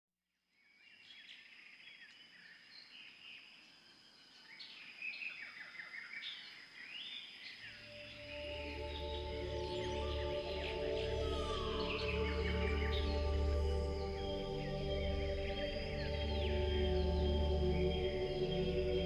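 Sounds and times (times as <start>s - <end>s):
birds chirping and trilling: 1.0s - 19.0s
steady high-pitched tone: 7.8s - 19.0s
music with low bass: 8.4s - 19.0s.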